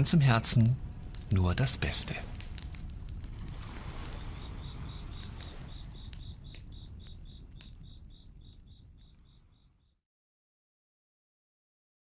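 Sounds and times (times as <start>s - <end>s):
campfire crackling and popping: 0.0s - 10.0s
cricket chirping: 0.0s - 10.0s
low rumble: 0.8s - 9.6s.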